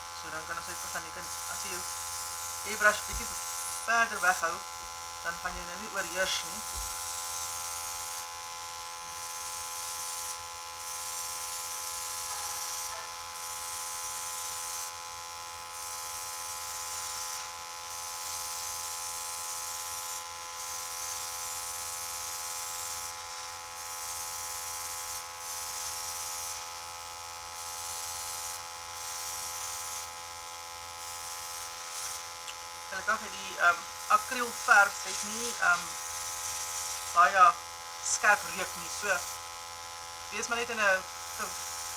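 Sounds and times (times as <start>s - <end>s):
airbrush spraying hiss: 12.2s - 13.2s, 22.8s - 24.2s, 25.6s - 26.9s, 33.0s - 39.4s
compressor humming: 32.5s - 39.2s.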